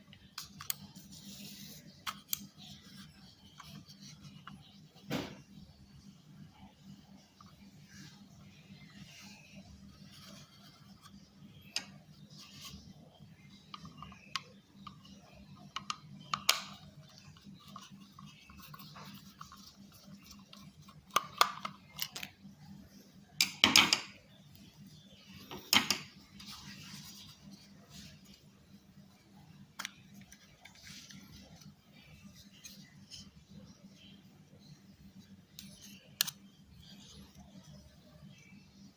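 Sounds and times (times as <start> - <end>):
plastic mouse parts clicking: 13.6 - 22.4.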